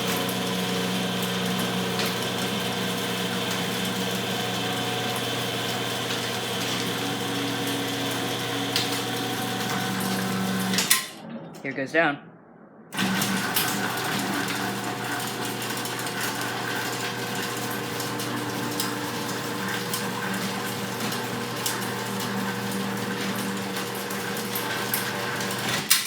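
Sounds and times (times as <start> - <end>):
garage door opener motor hum: 0.0 - 11.2, 13.0 - 26.0.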